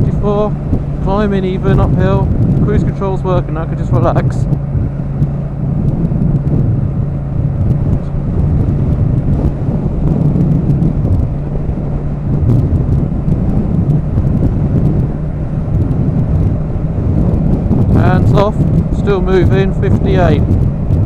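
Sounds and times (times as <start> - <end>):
motorcycle engine cruising: 0.0 - 21.0
wind rushing over microphone: 0.0 - 21.0
faint microphone ticks: 5.2 - 6.7.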